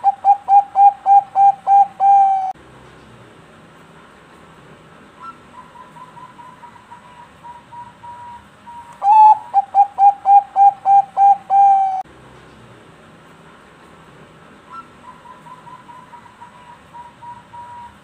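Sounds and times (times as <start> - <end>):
dove cooing: 0.0 - 2.6, 9.0 - 12.0, 14.7 - 18.0.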